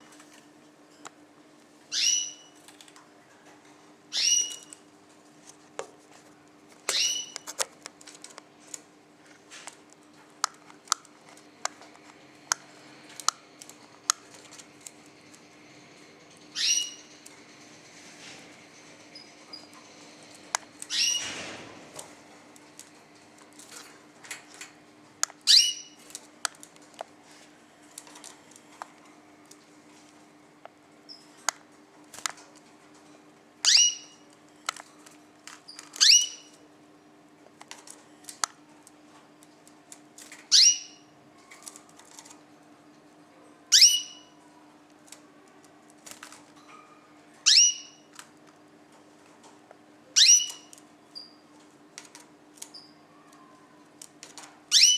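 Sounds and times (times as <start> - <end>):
birds calling with falling pitch: 1.9 - 2.6, 6.9 - 7.5, 47.5 - 48.1, 50.2 - 50.7
faint bird chirps and clicks: 4.1 - 4.8, 6.9 - 7.6, 16.6 - 17.3, 50.2 - 51.4.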